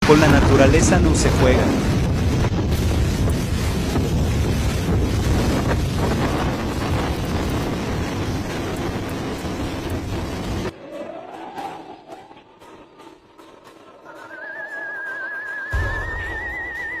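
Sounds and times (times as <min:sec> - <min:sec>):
wind buffeting microphone: 0:00.0 - 0:10.7
loud low rumbling: 0:00.0 - 0:13.9.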